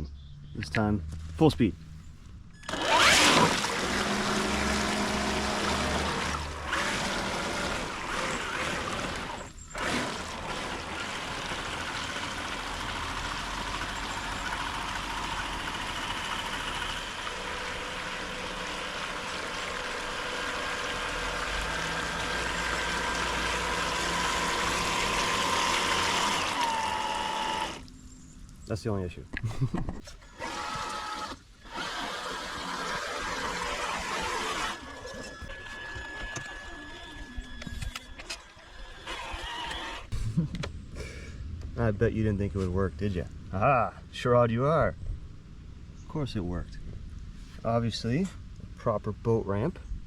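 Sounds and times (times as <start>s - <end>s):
faint motor whine: 1.1s - 50.0s
water churning and splashing: 2.7s - 27.9s, 30.4s - 36.2s.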